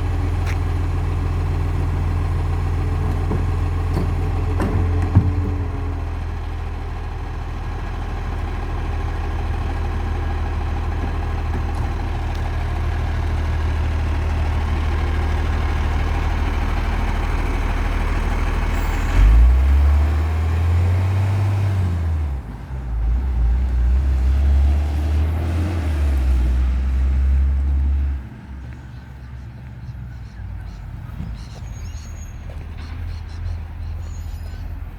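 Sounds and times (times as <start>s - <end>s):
truck diesel engine idling: 0.0s - 34.9s
engine revving up and down: 18.7s - 22.4s, 23.1s - 28.2s.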